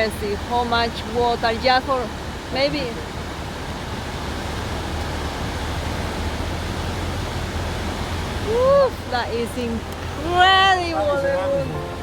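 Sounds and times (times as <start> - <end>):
flooded river rushing: 0.0 - 12.0.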